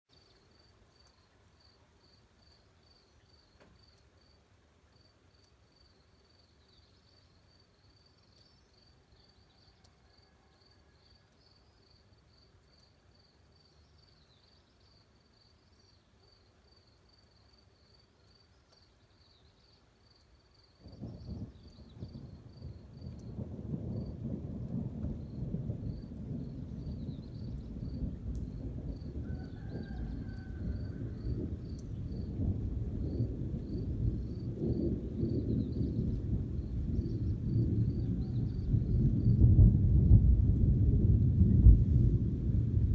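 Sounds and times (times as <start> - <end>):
crickets chirping: 0.2 - 39.5
thunder rumble: 20.8 - 42.9.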